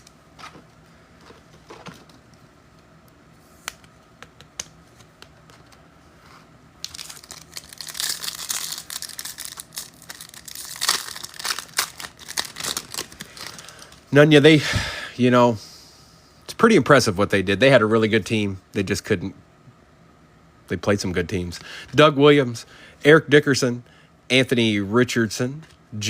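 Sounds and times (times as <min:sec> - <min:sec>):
wrapper tearing and crinkling: 0:06.8 - 0:14.0.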